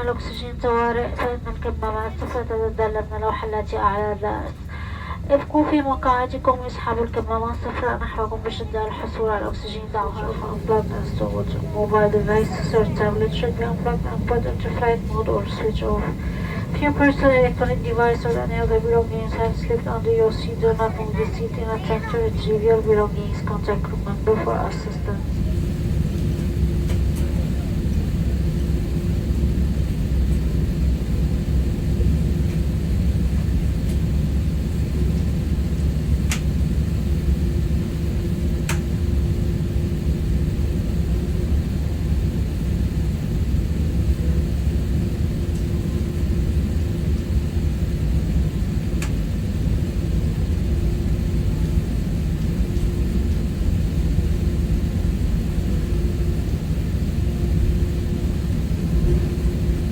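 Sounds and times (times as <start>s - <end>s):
airplane cabin engine rumble: 0.0s - 59.9s
faint hum: 0.0s - 59.9s.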